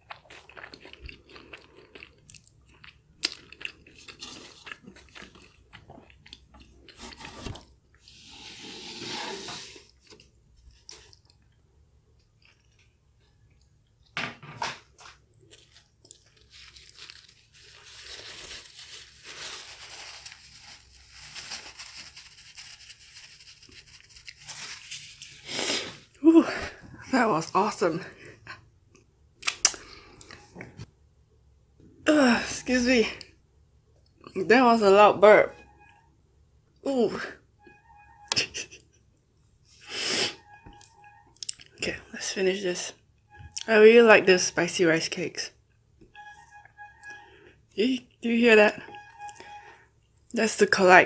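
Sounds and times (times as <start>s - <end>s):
scraping noise: 7.1s - 9.9s.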